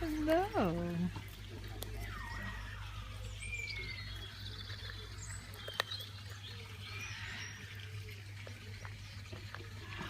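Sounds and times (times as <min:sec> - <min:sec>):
bird chirps and whistles: 0:02.0 - 0:04.8.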